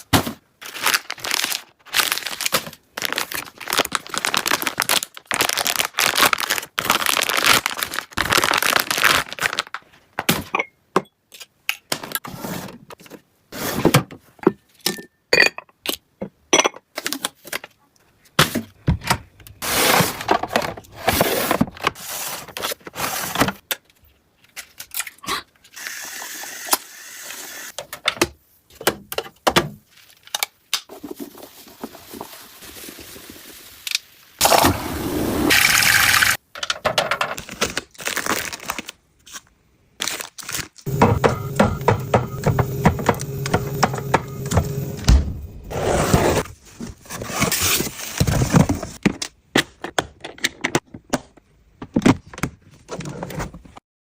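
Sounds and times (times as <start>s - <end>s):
objects crinkling and scraping: 0.2s - 10.2s, 16.9s - 25.7s, 29.8s - 34.2s, 45.6s - 53.8s.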